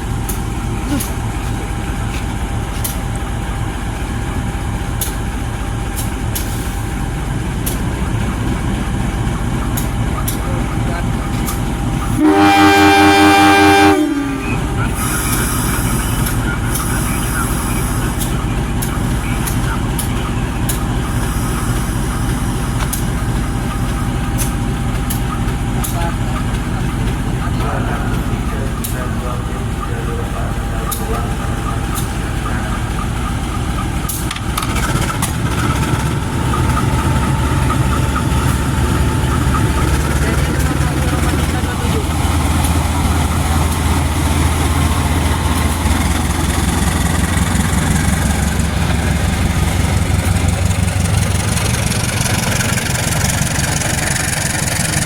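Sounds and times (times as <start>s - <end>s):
heavy diesel engine rumbling: 0.0s - 55.0s
steady train noise: 0.0s - 55.0s
train horn blast: 12.1s - 15.6s.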